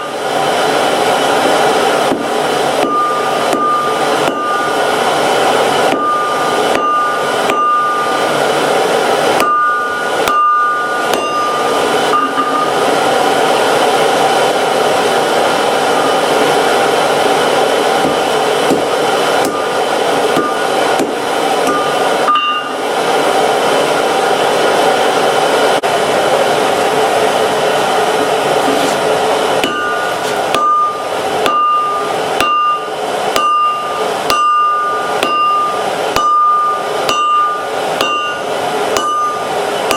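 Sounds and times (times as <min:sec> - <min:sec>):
forge blower hissing: 0:00.0 - 0:39.9
hammer striking steel on anvil: 0:01.9 - 0:13.0, 0:18.0 - 0:22.8, 0:29.6 - 0:39.9.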